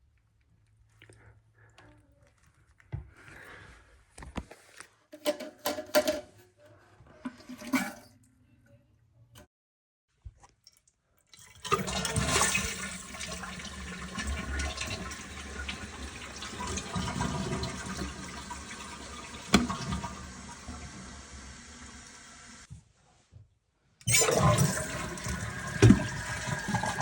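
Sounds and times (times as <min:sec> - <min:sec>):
toilet flushing: 0:07.2 - 0:08.1, 0:11.4 - 0:22.7, 0:24.0 - 0:27.0
tank refilling: 0:11.4 - 0:22.6, 0:24.1 - 0:27.0.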